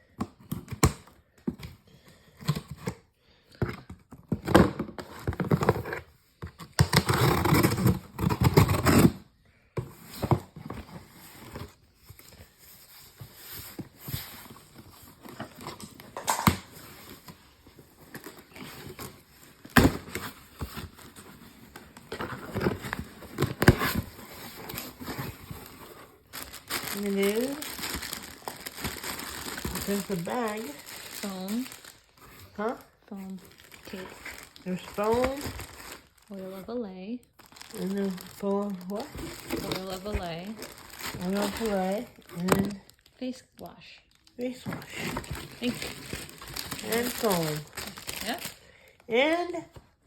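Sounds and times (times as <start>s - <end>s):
packaging tearing and scraping: 6.8s - 9.3s, 10.2s - 32.6s, 33.2s - 36.4s, 37.4s - 43.1s, 44.2s - 48.6s.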